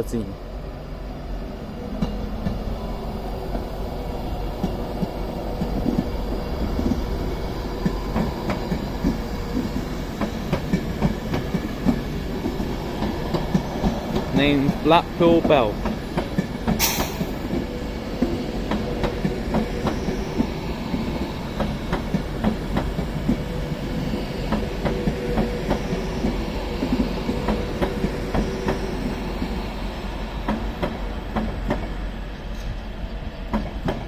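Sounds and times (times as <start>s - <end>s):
electric train rumbling: 0.0s - 34.0s.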